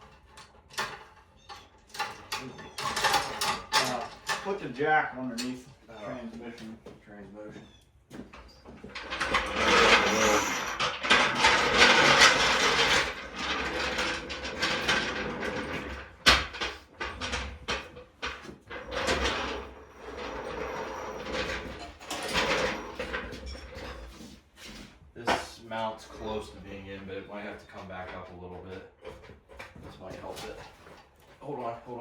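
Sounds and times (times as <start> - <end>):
floor jack scraping and clattering: 8.6 - 25.6.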